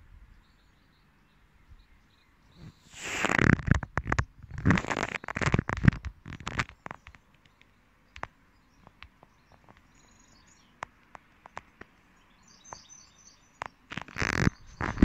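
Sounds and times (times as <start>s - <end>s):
faint birds chirping: 0.0s - 15.0s
small clicks: 3.0s - 10.1s, 10.7s - 12.0s, 13.6s - 15.0s.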